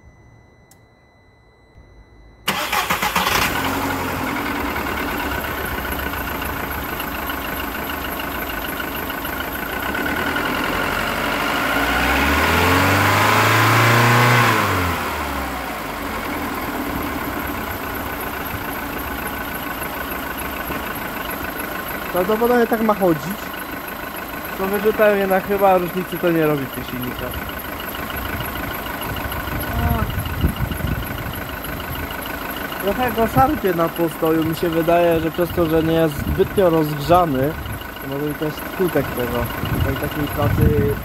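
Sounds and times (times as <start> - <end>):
car engine starting and idling: 0.4 - 41.0
engine revving: 2.5 - 7.0, 9.8 - 17.4.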